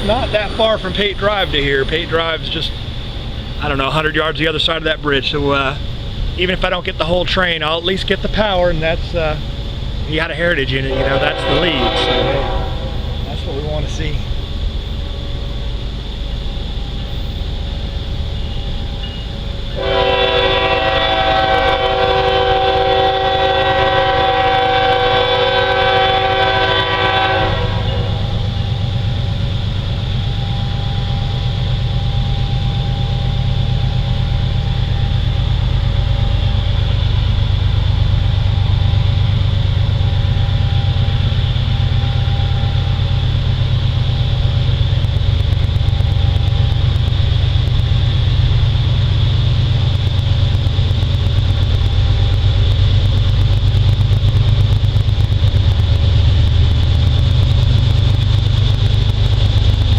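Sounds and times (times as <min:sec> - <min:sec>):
low diesel rumble: 0:00.0 - 0:59.9
locomotive air horn blast: 0:10.8 - 0:13.5, 0:19.7 - 0:28.6.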